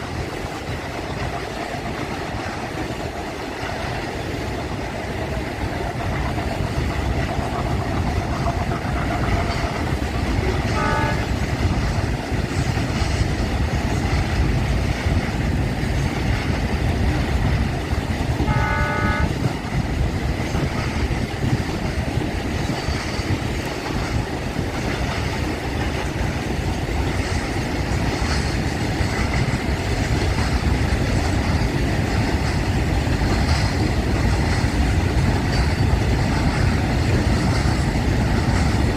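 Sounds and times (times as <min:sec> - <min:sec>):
diesel locomotive engine rumble: 0:00.0 - 0:38.9
locomotive horn blast: 0:10.5 - 0:11.4, 0:18.4 - 0:19.4.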